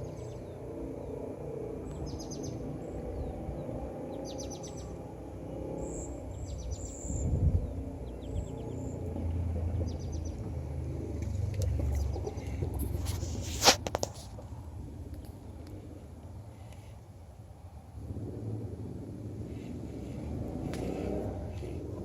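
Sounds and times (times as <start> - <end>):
birds chirping in trills: 0.0 - 10.8.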